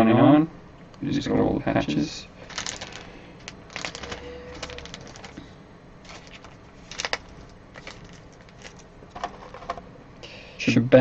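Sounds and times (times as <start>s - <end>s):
cards and wrappers rustling: 2.4s - 9.8s.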